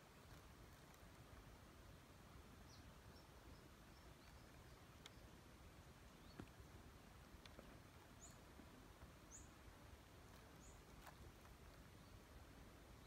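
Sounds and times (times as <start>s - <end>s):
faint outdoor ambience: 0.0s - 13.0s
small bird chirping: 2.5s - 5.4s, 6.0s - 6.6s, 7.5s - 13.0s
faint clicks: 4.2s - 5.3s, 7.3s - 8.4s.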